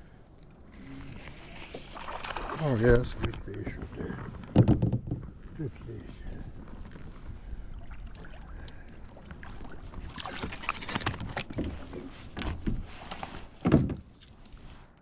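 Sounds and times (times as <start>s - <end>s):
water splashing: 1.3s - 3.2s
metal lure and hooks jingling: 7.8s - 8.6s, 9.2s - 11.9s, 14.0s - 15.0s
thump: 13.6s - 14.0s.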